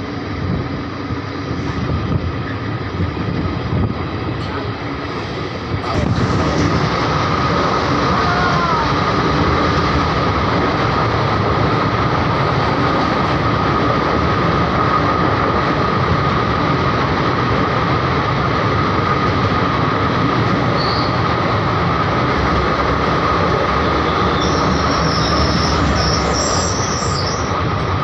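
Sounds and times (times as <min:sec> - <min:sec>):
passenger train rumbling: 0:00.0 - 0:28.0
steady high whine: 0:00.0 - 0:28.0
falling squeal: 0:20.8 - 0:21.3, 0:23.8 - 0:27.6.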